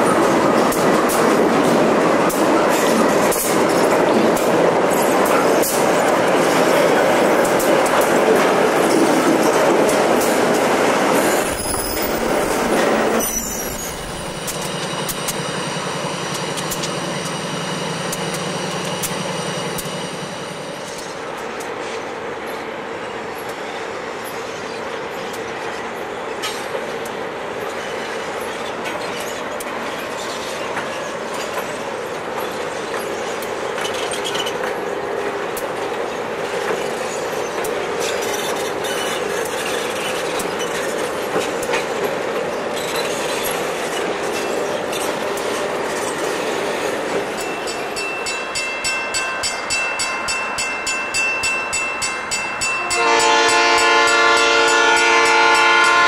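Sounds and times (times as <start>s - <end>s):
train rumbling past: 0.0s - 56.0s
locomotive pulsing with ringing tones: 11.3s - 21.2s, 42.8s - 56.0s.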